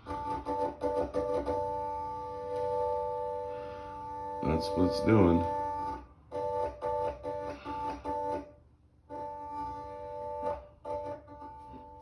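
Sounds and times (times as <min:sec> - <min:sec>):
pinball machine organ-like chord: 0:00.0 - 0:08.5, 0:09.1 - 0:12.0.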